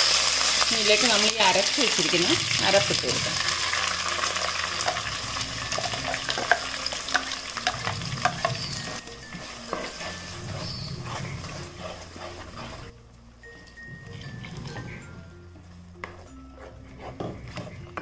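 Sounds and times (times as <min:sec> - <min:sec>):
paste sizzling in hot oil: 0:00.0 - 0:12.9
wooden spatula stirring: 0:01.7 - 0:13.0, 0:13.6 - 0:18.0.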